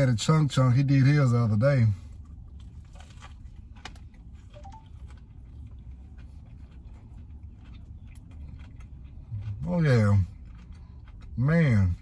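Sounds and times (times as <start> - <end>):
chewing crispy sandwich: 0.0 - 12.0.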